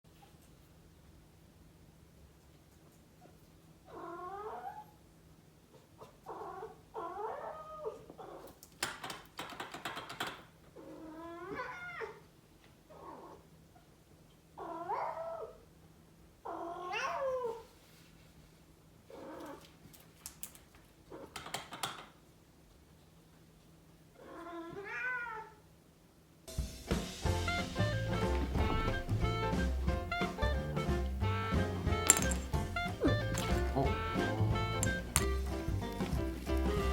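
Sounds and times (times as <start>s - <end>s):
cat meowing: 3.9s - 4.9s, 10.8s - 12.2s, 14.6s - 15.6s, 16.5s - 17.6s, 24.2s - 25.6s, 30.2s - 35.4s.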